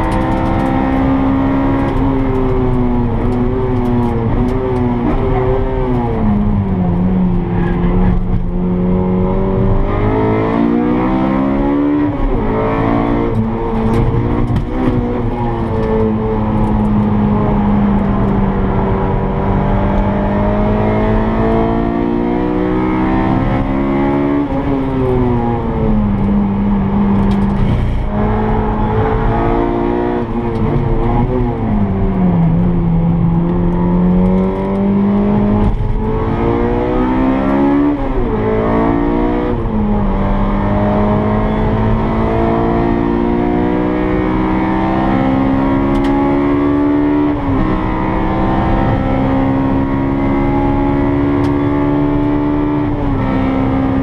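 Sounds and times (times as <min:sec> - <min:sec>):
car engine revving: 0:00.0 - 0:54.0
tyre and road noise: 0:11.6 - 0:20.8, 0:22.8 - 0:50.2.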